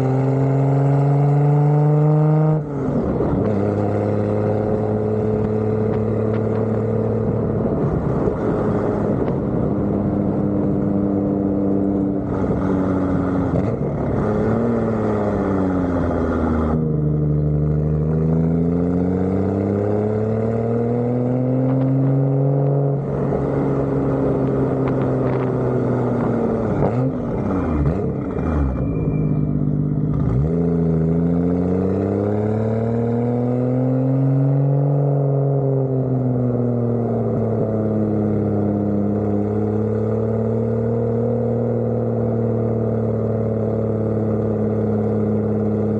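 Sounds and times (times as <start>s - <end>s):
car engine shifting gears: 0.0s - 45.9s.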